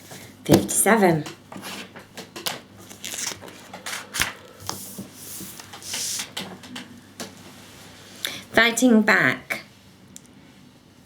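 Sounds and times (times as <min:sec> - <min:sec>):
paper and packaging rustling: 0:02.8 - 0:06.4.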